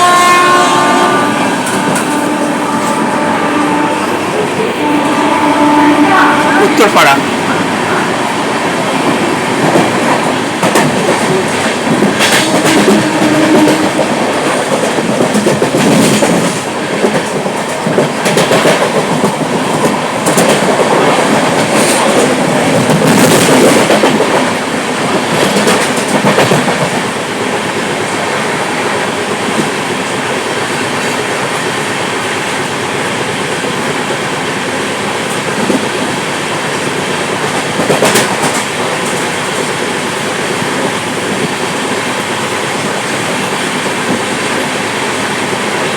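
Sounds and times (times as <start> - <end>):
train rumbling on rails: 0.0 - 45.9
wheels clacking over rail joints: 9.0 - 27.7, 35.2 - 45.9.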